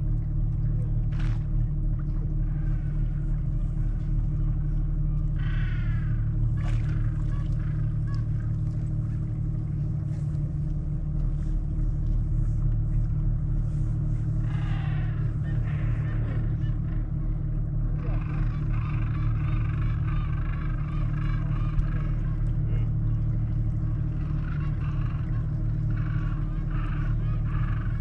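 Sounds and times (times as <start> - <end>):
boat engine drone: 0.0 - 28.0
penguins calling: 18.0 - 22.8, 24.0 - 28.0.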